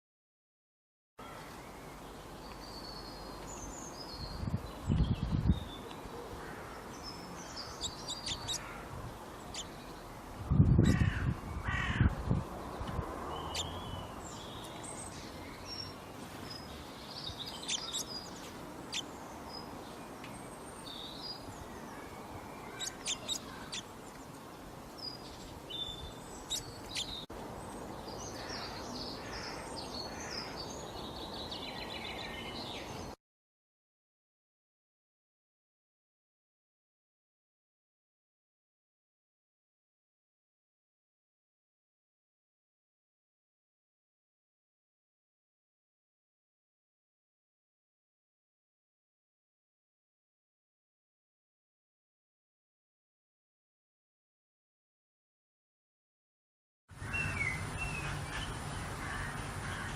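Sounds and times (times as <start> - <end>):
birds chirping: 1.2 - 33.2, 56.9 - 59.9.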